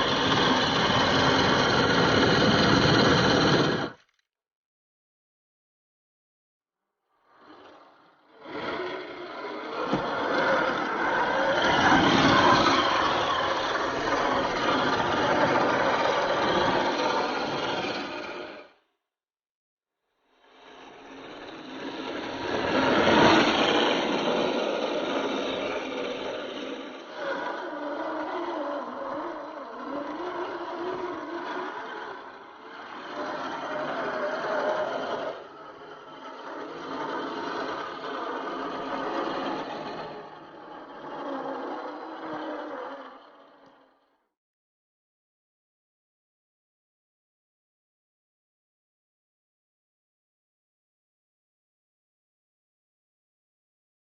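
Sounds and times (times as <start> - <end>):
toy car electric motor and gears: 0.0 - 4.3, 7.2 - 18.8, 20.3 - 44.3.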